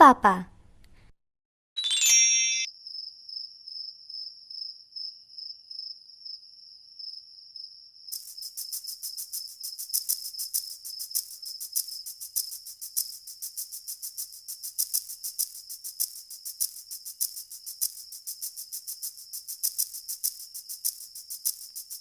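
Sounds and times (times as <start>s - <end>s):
fast insect chirping: 2.8s - 22.0s
insect trilling: 7.0s - 22.0s.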